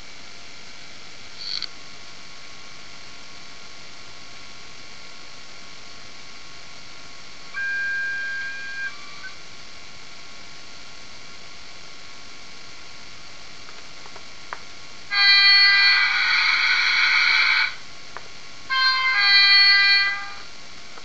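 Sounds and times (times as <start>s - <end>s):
speaker hiss: 0.0s - 21.0s
sharp click: 1.4s - 1.7s.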